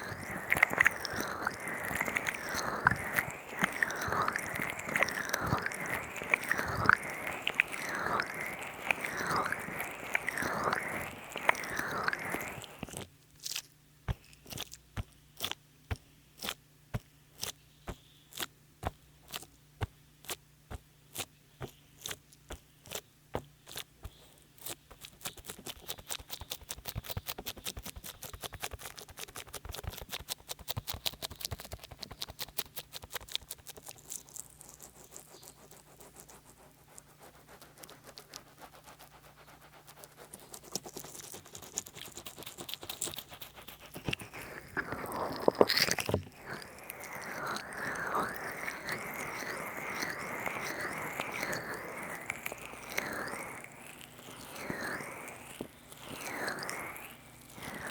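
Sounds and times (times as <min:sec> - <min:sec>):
oily hands squelching on skin: 0:00.0 - 0:13.1, 0:32.2 - 0:57.9.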